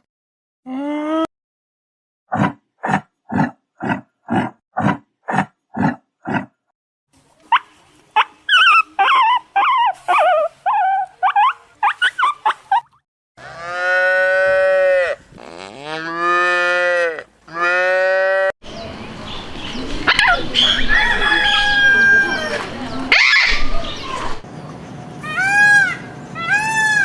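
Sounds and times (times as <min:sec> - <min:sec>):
cow mooing: 0:13.4 - 0:18.5
animal high wavering calls: 0:20.1 - 0:24.0, 0:25.2 - 0:27.0.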